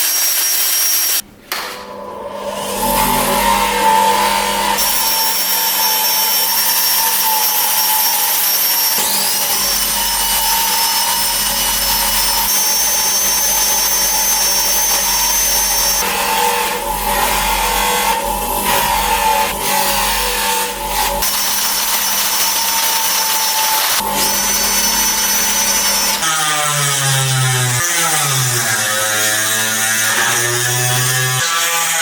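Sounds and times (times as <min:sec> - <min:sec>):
power tool whining: 0:01.9 - 0:32.0.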